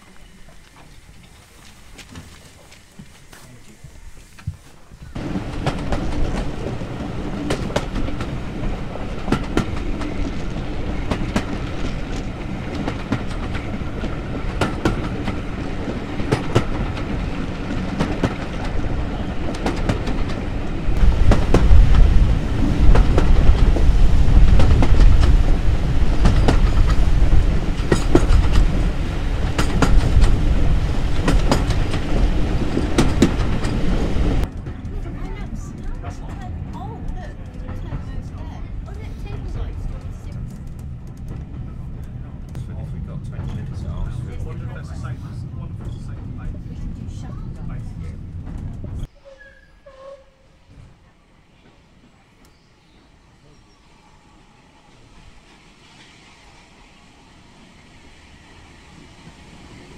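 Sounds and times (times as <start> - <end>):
train wheels clicking over rail joints: 0.0 - 44.7
low train rumble: 0.0 - 59.9.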